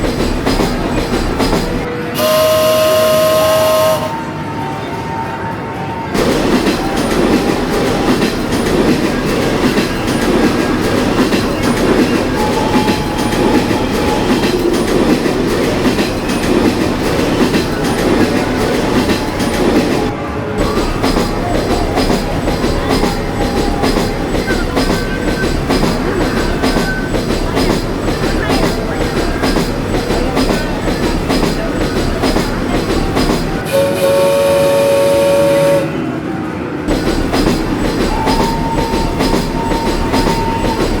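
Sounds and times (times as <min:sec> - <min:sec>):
kiddie train ride running: 0:00.0 - 0:41.0
train whistle tone: 0:01.9 - 0:08.6, 0:09.8 - 0:15.3, 0:33.4 - 0:36.4, 0:37.9 - 0:41.0.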